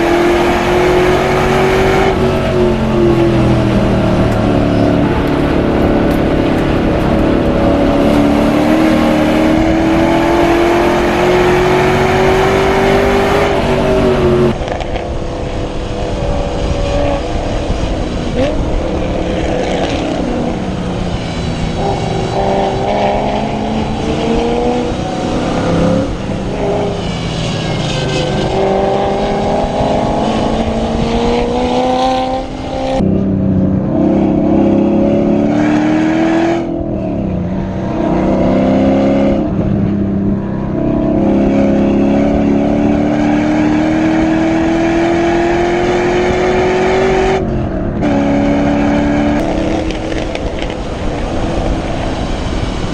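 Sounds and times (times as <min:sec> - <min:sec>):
race car engines revving: 0:00.0 - 0:52.9.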